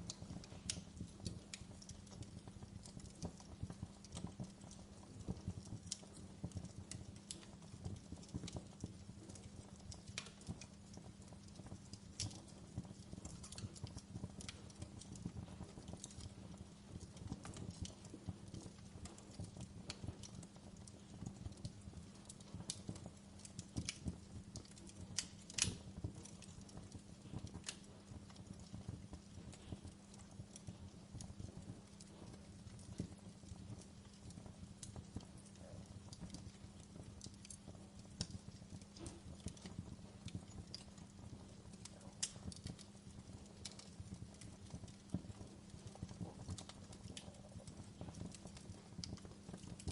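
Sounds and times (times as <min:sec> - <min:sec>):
wood fire crackling and popping: 0:00.0 - 0:49.9.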